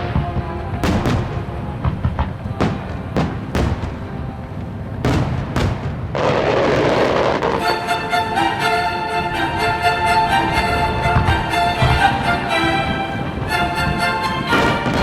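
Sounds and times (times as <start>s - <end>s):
fireworks bangs: 0.0s - 7.6s, 14.5s - 15.0s
loud dense hiss: 0.0s - 15.0s
music playing: 7.6s - 15.0s.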